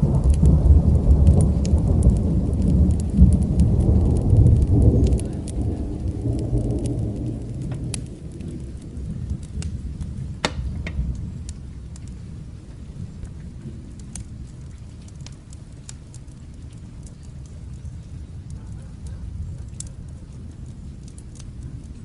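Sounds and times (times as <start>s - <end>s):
crackling fire pops: 0.0s - 22.0s
distant thunder rumble: 0.0s - 22.0s
rain: 0.0s - 22.0s.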